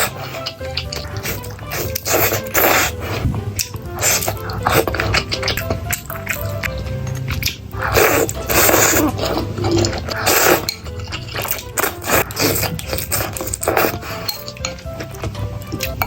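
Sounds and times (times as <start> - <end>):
background music: 0.0 - 16.0
person eating noisily: 0.0 - 16.0.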